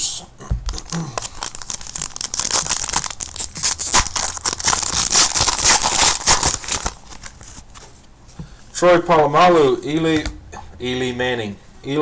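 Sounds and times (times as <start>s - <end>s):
wrapper crinkling and tearing: 0.7s - 7.8s.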